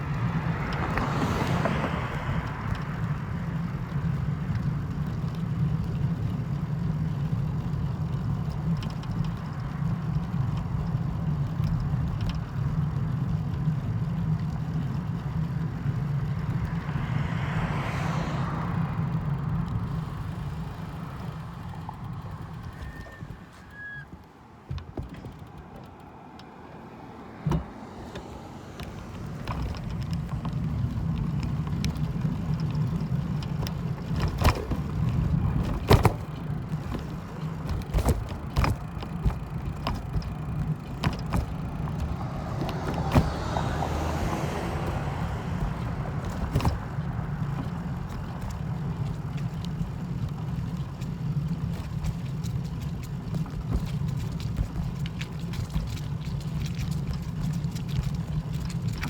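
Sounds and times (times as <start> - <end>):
vehicle rumble: 0.0 - 59.0.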